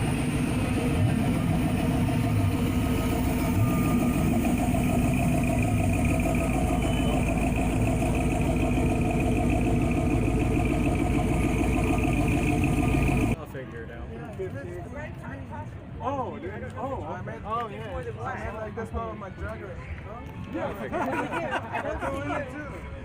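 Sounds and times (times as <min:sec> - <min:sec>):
engine idling: 0:00.0 - 0:13.4.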